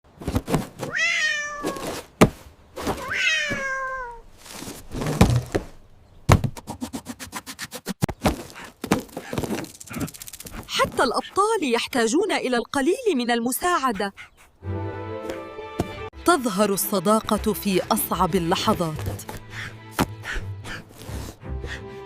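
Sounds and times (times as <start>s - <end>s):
cat meowing: 0.9s - 1.9s, 3.0s - 4.2s
dull thuds: 4.5s - 6.7s.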